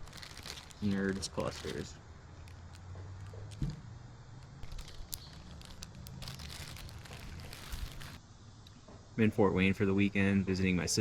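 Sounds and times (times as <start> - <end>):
plastic candy bag crinkling: 0.0 - 3.7, 4.4 - 8.2.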